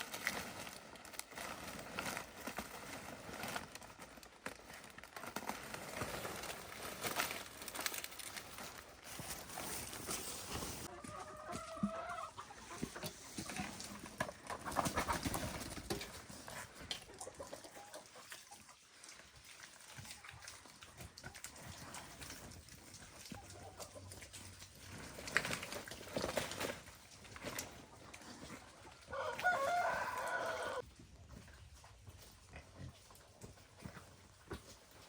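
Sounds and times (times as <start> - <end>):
chickens clucking: 10.5 - 18.9, 21.0 - 30.8.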